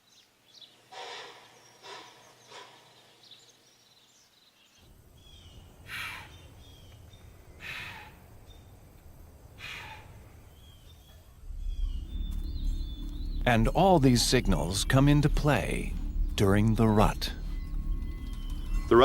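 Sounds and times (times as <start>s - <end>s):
deer chuffing: 0.9s - 2.9s, 9.6s - 10.3s
faint bird chirps: 9.5s - 19.0s.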